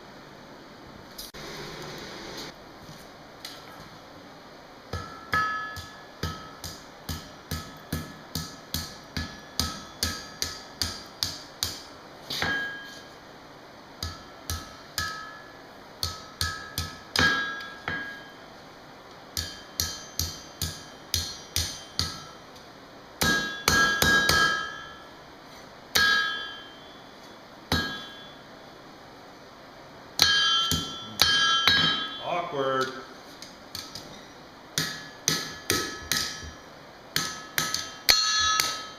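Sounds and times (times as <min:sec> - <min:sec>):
hammer striking steel on anvil: 0:04.9 - 0:13.1, 0:14.0 - 0:18.4, 0:19.4 - 0:22.4, 0:23.2 - 0:25.1, 0:25.9 - 0:27.1, 0:27.7 - 0:28.4, 0:30.2 - 0:33.1, 0:34.8 - 0:36.6, 0:37.2 - 0:38.9
anvil ringing: 0:05.0 - 0:11.0, 0:12.4 - 0:13.0, 0:14.0 - 0:18.4, 0:19.4 - 0:22.4, 0:23.2 - 0:25.1, 0:25.9 - 0:27.1, 0:27.7 - 0:28.5, 0:30.2 - 0:33.0, 0:37.2 - 0:38.9.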